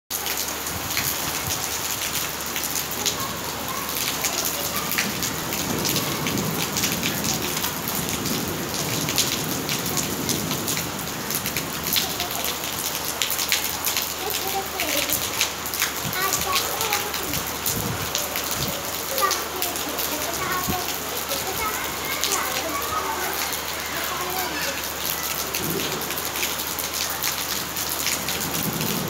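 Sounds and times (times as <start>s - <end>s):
rain pattering: 0.1s - 29.0s.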